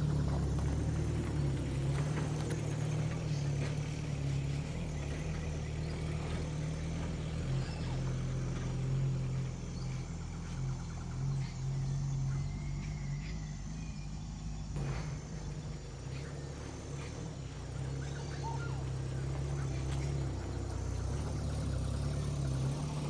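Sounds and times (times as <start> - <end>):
light knocks and rattles: 0.0 - 9.6
car engine running: 0.0 - 23.0.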